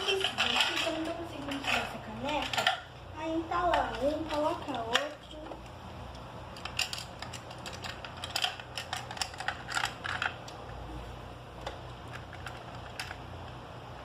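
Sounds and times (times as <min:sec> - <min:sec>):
plastic toy pieces clicking: 0:00.0 - 0:02.8, 0:06.6 - 0:10.5.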